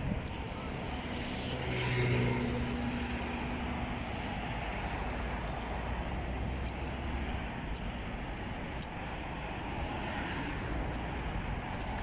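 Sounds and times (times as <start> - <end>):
vehicle engine humming past: 0.3 - 7.8.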